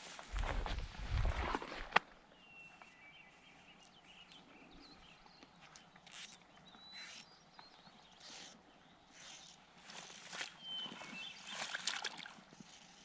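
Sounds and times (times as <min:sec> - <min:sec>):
footsteps squelching in bog: 0:00.0 - 0:02.0, 0:09.8 - 0:12.5
rumble: 0:00.2 - 0:02.0.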